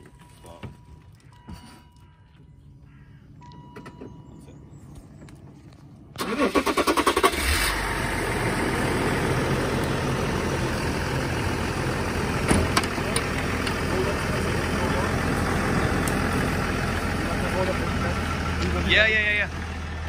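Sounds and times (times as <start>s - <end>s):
engine starter cranking: 6.2s - 7.9s
car engine idling: 6.2s - 20.0s.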